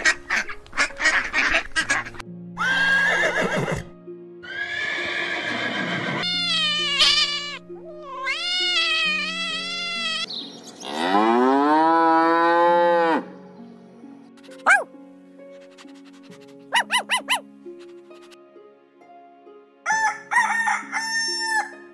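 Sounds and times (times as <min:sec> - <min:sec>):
gentle background music: 0:00.0 - 0:21.9
horse neighing: 0:02.6 - 0:10.0
cat meowing: 0:06.2 - 0:10.3
cow mooing: 0:10.8 - 0:13.3.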